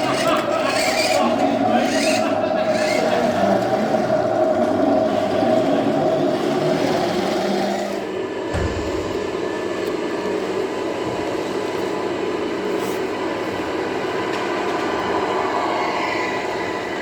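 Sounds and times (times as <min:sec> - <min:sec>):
rc model vehicle whirring: 0:00.0 - 0:08.0.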